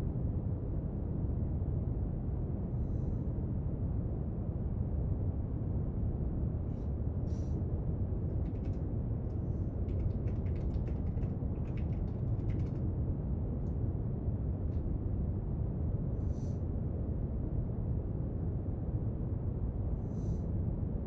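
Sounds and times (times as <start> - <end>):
faint clicks and scratches at desk: 8.2 - 13.0.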